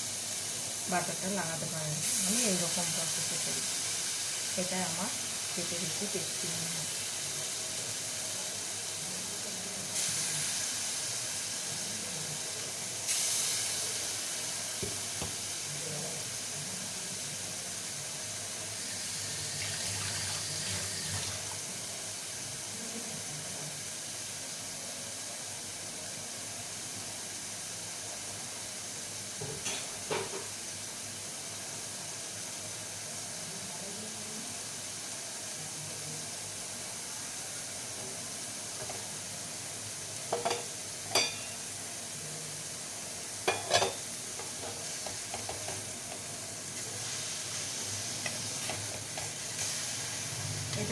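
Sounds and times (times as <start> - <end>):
chicken sizzling in a frying pan: 0.0 - 50.9.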